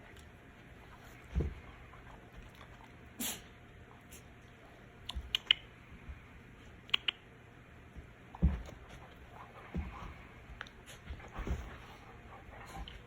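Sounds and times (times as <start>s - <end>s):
puppy claws clicking and tapping: 5.0s - 5.7s, 6.8s - 7.3s.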